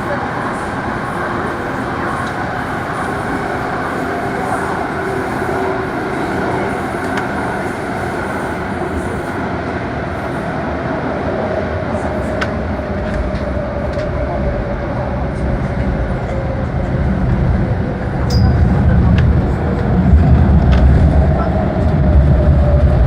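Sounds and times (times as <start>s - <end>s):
train wheels rumbling: 11.8s - 23.0s.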